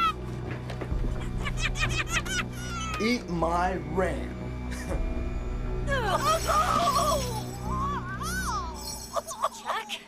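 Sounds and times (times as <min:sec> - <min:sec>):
background music: 0:00.0 - 0:10.0
cartoonish cackling voice: 0:01.2 - 0:03.0.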